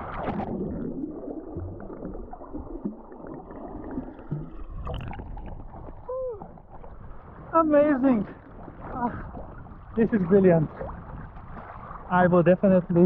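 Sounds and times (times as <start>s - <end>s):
muffled seawater sloshing: 0.0s - 13.0s
small water splashes: 0.0s - 13.0s
person exclaiming: 6.1s - 6.6s.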